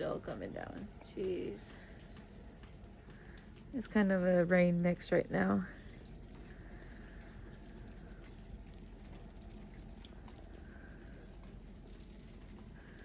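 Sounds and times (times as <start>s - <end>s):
patter of rain and snow: 0.0s - 13.0s
small drips: 0.0s - 13.0s.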